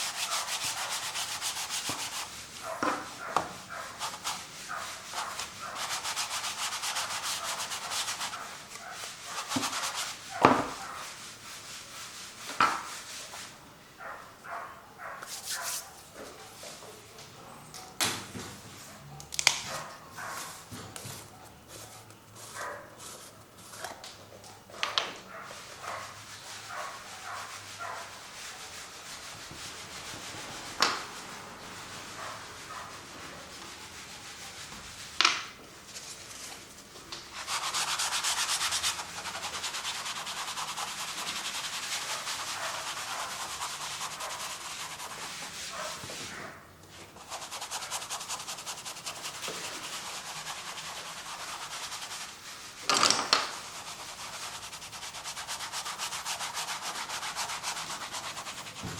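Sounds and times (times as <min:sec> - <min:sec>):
sharp brush swishes: 0:00.0 - 0:13.4, 0:15.2 - 0:15.9, 0:37.3 - 0:46.4, 0:47.2 - 0:52.8, 0:53.5 - 0:58.9
paint rubbing on canvas: 0:00.0 - 0:13.6, 0:15.0 - 0:16.0, 0:19.8 - 0:23.9, 0:25.3 - 0:35.2, 0:37.3 - 0:58.9.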